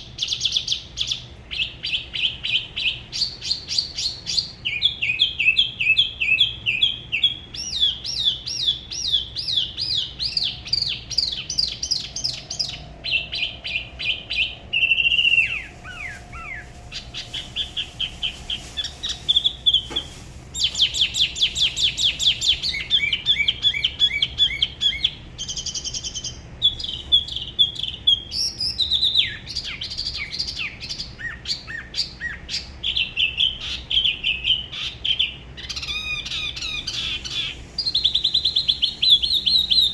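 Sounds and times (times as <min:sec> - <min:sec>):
bird singing whistled trills: 0:00.0 - 0:39.9.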